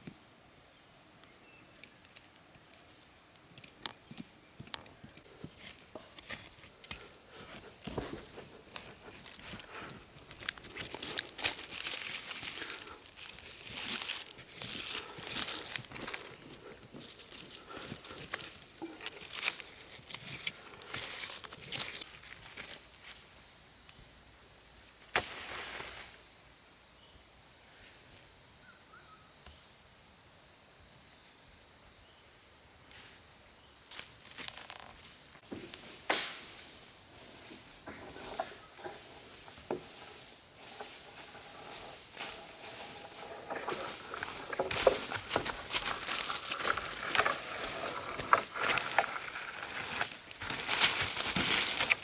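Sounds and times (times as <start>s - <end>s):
rustling and crackling: 4.7s - 23.1s, 34.3s - 52.0s.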